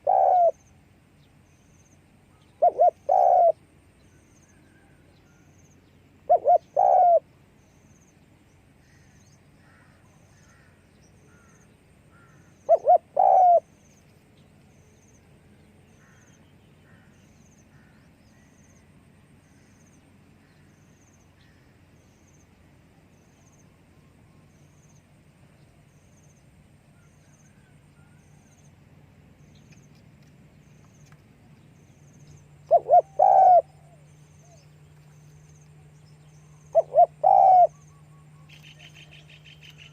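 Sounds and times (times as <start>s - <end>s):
dove cooing: 0.0s - 0.6s, 2.5s - 3.6s, 6.3s - 7.2s, 12.2s - 13.7s, 32.6s - 34.6s, 36.7s - 39.9s
faint bird chirps: 0.0s - 28.8s, 30.6s - 39.9s.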